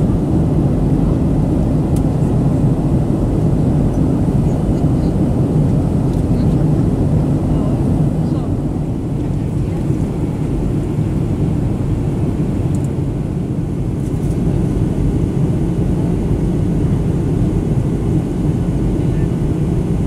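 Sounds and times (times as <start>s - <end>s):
airliner engines rumbling: 0.0s - 20.0s.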